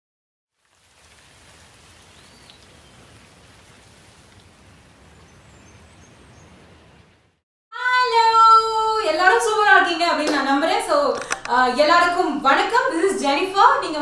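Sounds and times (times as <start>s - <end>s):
steady rain falling: 0.5s - 7.3s.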